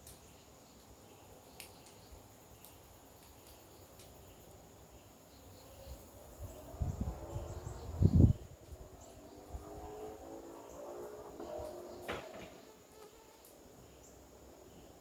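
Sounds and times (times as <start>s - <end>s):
faint ticks: 1.4s - 4.5s.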